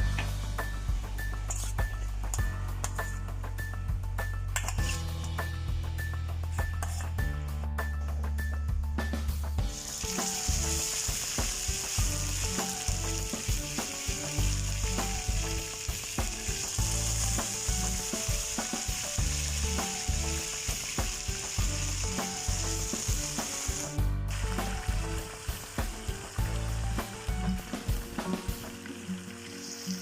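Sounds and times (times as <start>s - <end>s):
fish sizzling in hot oil: 9.6s - 30.0s.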